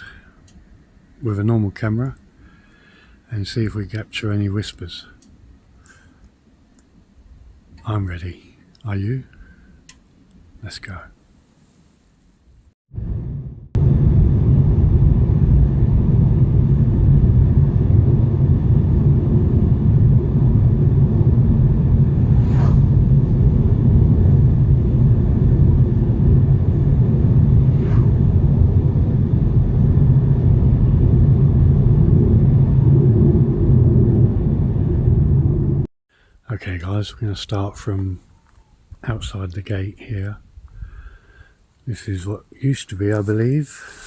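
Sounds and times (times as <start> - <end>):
vehicle rumble: 12.9 - 35.9
faint brief sweeps: 22.2 - 23.0, 27.7 - 28.2.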